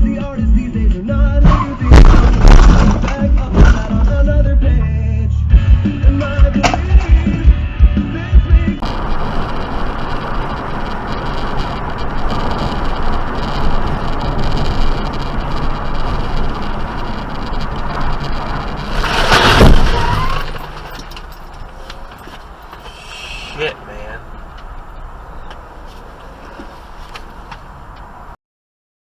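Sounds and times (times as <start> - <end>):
car road noise: 0.0 - 28.4.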